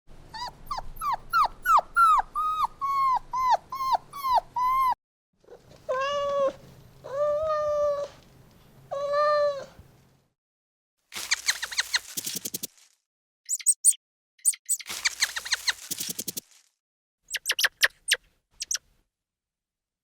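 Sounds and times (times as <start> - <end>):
young animal crying: 0.4 - 8.2, 8.9 - 9.8.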